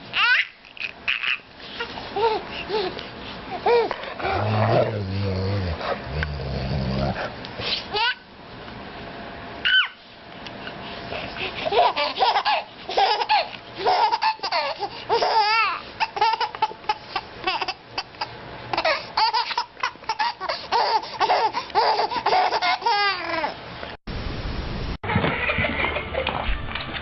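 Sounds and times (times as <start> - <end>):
baby laughing: 0.1 - 4.0, 7.9 - 8.2, 11.3 - 23.6.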